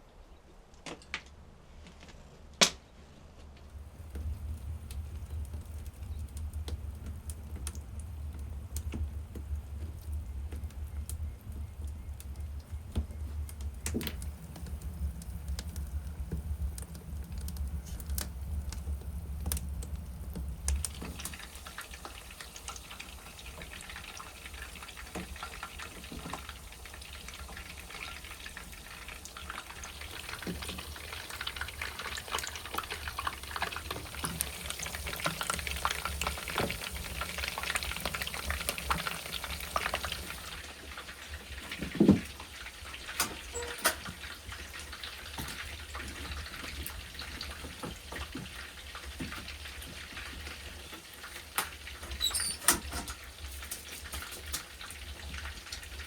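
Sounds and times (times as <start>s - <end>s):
food sizzling in a frying pan: 20.8s - 56.0s.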